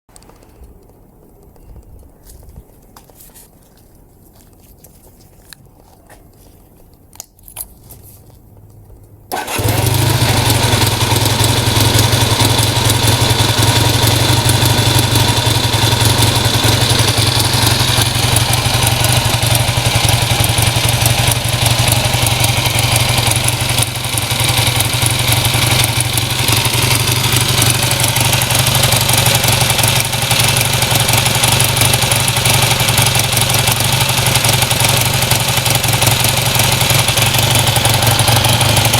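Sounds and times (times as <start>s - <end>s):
motorcycle engine starting and idling: 9.3s - 38.9s.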